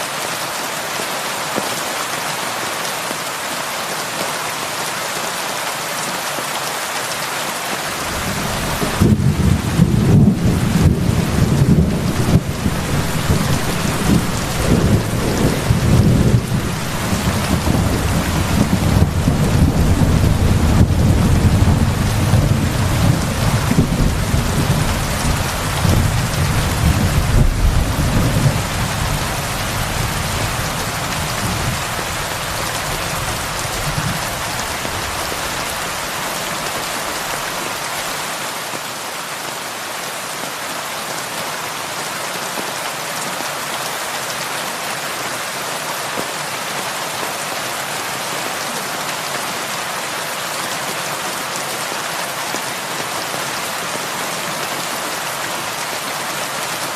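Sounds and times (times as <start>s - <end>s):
heavy rain on a roof: 0.0s - 56.9s
rolling thunder: 8.0s - 34.2s.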